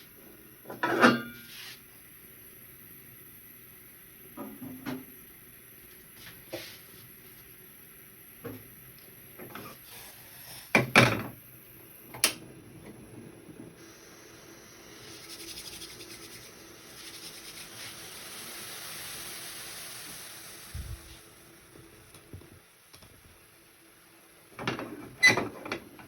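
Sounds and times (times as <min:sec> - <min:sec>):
steady hiss: 0:01.3 - 0:10.8, 0:13.8 - 0:24.4
kitchen knocks and clatters: 0:10.8 - 0:11.4.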